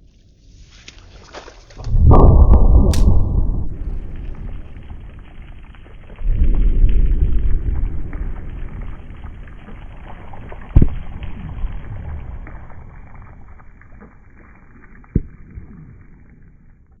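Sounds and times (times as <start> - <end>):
fireworks loud bang: 2.8 - 5.1
fireworks crackling and popping: 2.8 - 14.4.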